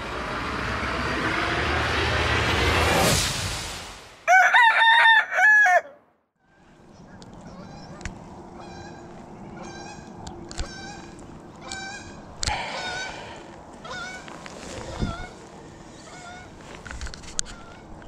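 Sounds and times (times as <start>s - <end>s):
loud arching bird calls: 6.9s - 16.6s.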